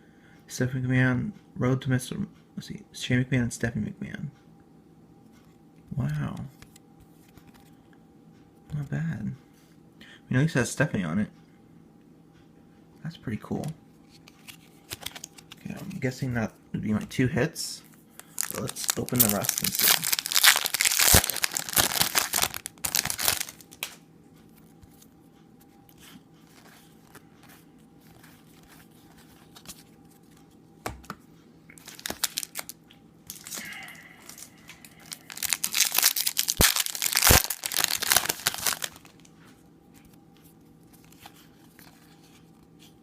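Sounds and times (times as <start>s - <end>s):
card wrappers tearing and crinkling: 14.3s - 15.7s, 18.2s - 24.0s, 31.8s - 39.3s.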